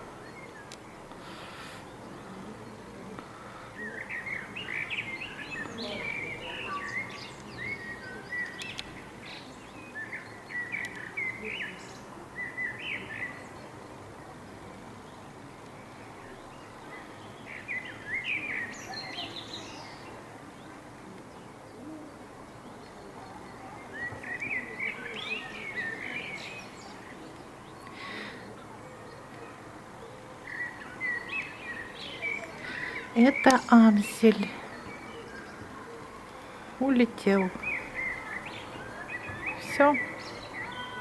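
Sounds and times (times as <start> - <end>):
steady background hiss: 0.0 - 41.0
blackbird singing: 3.7 - 13.7, 16.2 - 20.7, 22.6 - 29.4, 30.0 - 41.0.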